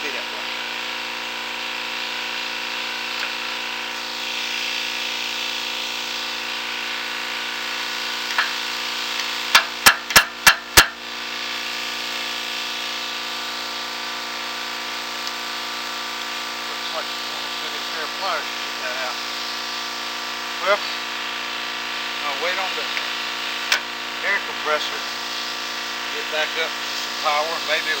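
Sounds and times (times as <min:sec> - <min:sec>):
air compressor running: 0:00.0 - 0:28.0
sharp knocks: 0:09.6 - 0:11.0.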